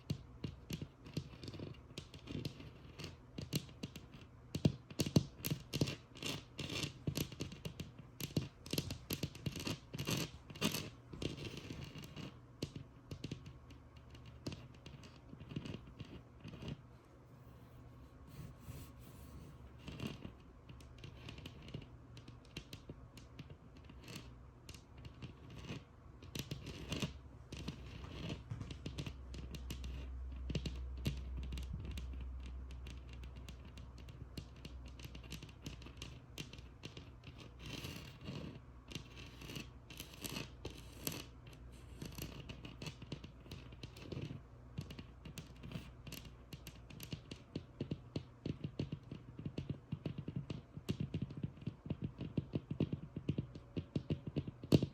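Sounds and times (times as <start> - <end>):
scratchy strokes on wall: 8.7 - 20.4
tapping on textured wall: 41.9 - 54.9.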